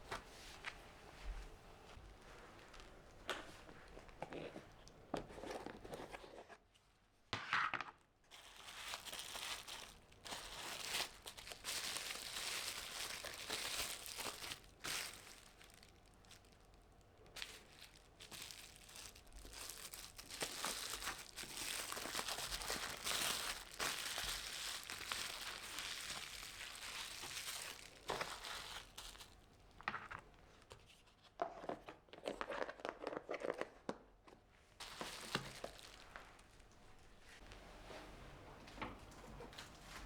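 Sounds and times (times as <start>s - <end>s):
crinkling and rustling handling: 0.0s - 6.9s, 7.6s - 40.0s.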